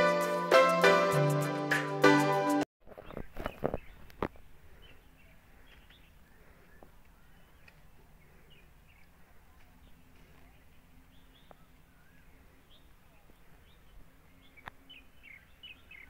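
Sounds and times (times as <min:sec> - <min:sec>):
background music: 0:00.0 - 0:02.6
birds chirping: 0:02.9 - 0:16.0.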